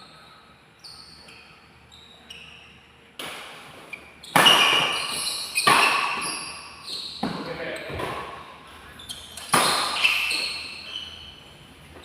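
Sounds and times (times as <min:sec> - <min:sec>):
rackets striking shuttlecock: 0:04.3 - 0:06.4, 0:09.4 - 0:10.4.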